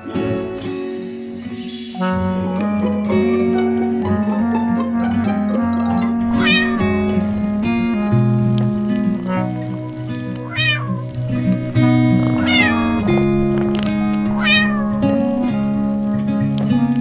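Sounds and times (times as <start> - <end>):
light background music: 0.0 - 17.0
cat meowing: 6.3 - 7.8, 10.4 - 11.2, 12.2 - 13.3, 14.2 - 15.5.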